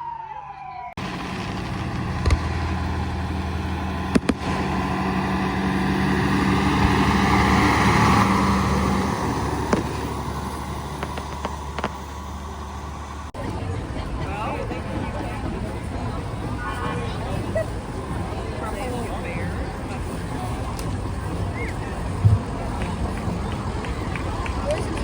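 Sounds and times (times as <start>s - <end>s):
vehicle driving past: 1.0s - 13.4s
vehicle engine humming: 1.0s - 25.0s.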